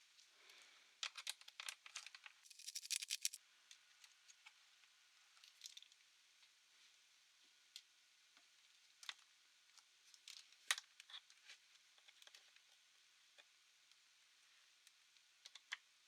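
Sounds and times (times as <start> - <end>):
small hard parts clicking: 1.0 - 3.4.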